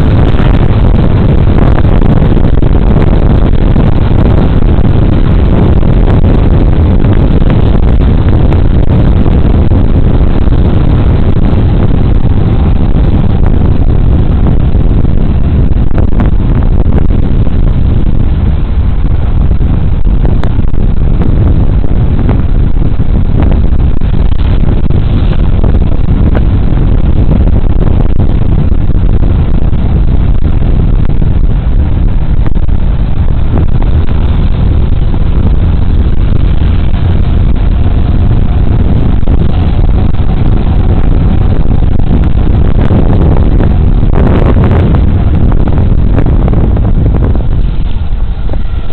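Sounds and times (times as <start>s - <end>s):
wind and road noise: 0.0s - 48.9s.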